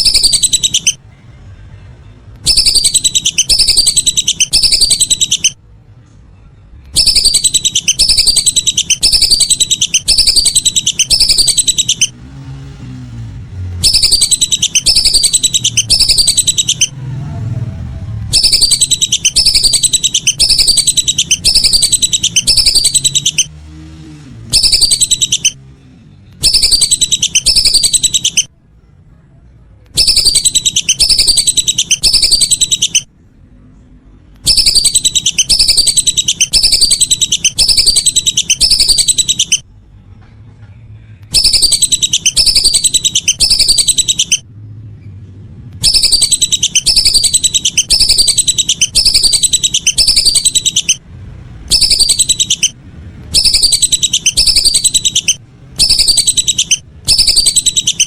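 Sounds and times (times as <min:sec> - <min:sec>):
whistling duck calls: 0:02.5 - 0:05.6, 0:07.0 - 0:12.1, 0:13.8 - 0:17.0, 0:18.3 - 0:23.5, 0:24.5 - 0:25.6, 0:26.4 - 0:28.5, 0:30.0 - 0:33.1, 0:34.5 - 0:39.6, 0:41.3 - 0:44.4, 0:45.8 - 0:51.0, 0:51.7 - 0:52.7, 0:53.3 - 0:58.0.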